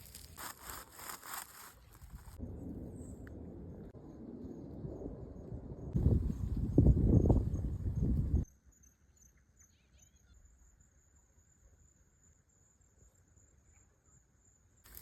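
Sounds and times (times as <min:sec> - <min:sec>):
faint insect trill: 0:04.0 - 0:15.0.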